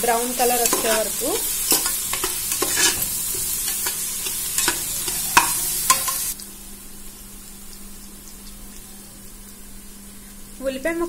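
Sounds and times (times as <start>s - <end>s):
onions sizzling in hot oil: 0.0s - 11.0s
spoon stirring: 0.3s - 6.4s
spoon clinking against pot: 0.6s - 6.3s.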